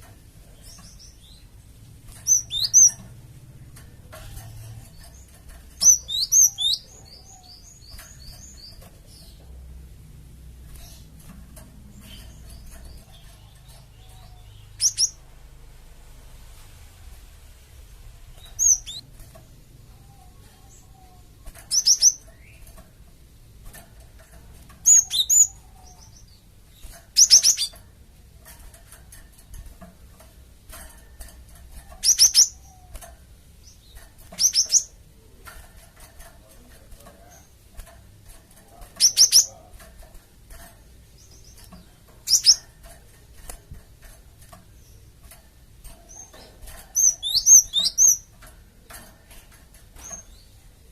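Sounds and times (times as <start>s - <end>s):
faint low hum: 0.0s - 50.9s
bird chip calls: 2.2s - 3.0s, 5.1s - 9.4s, 12.0s - 15.2s, 18.4s - 19.0s, 20.0s - 22.6s, 47.0s - 48.3s.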